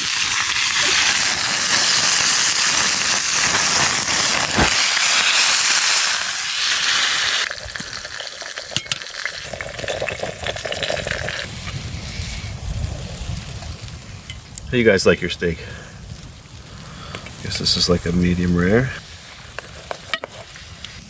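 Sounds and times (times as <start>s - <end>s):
steak sizzling in a hot pan: 0.0s - 11.5s.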